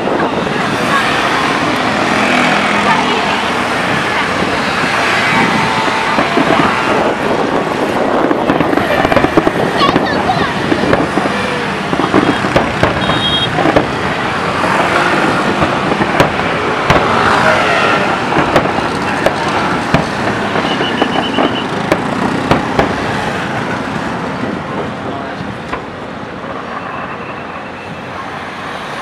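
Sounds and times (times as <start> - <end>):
fireworks bangs and pops: 0.1 - 26.6
fireworks whistles: 4.6 - 10.0, 10.9 - 13.9, 16.9 - 23.0, 26.5 - 28.3.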